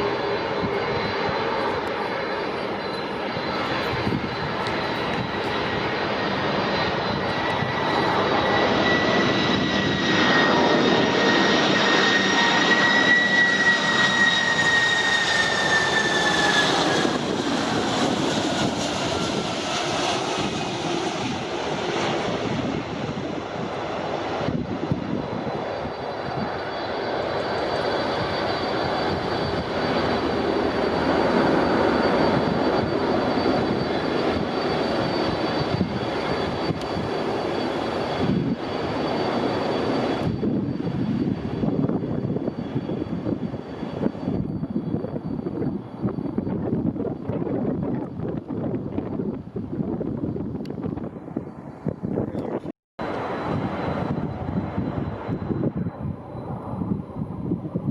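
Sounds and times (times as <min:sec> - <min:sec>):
jet engines whining: 0:00.0 - 0:57.9.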